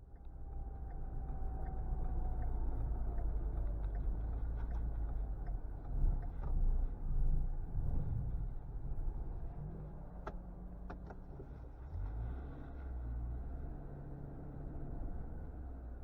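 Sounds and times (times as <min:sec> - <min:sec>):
faint clicks: 0:00.0 - 0:06.8
steady low rumble: 0:00.0 - 0:10.8.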